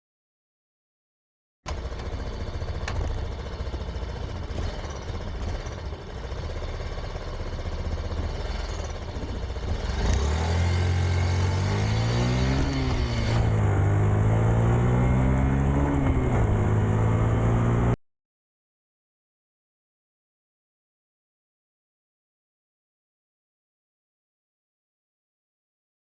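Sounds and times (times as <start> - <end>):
small motorcycle engine running: 1.7 - 18.0.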